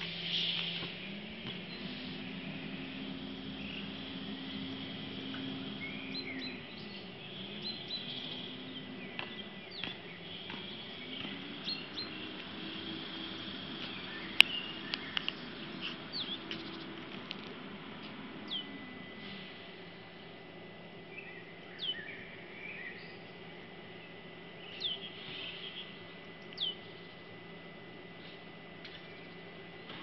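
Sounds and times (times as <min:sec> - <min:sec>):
birds chirping: 0:00.0 - 0:30.0
faint hum with high tone: 0:00.0 - 0:30.0
bird downward-sweeping whistle: 0:00.2 - 0:09.8.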